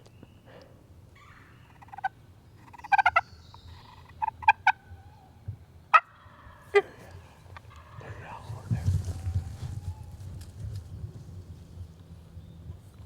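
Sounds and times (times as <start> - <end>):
turkey calling: 1.2 - 5.2, 5.9 - 10.0.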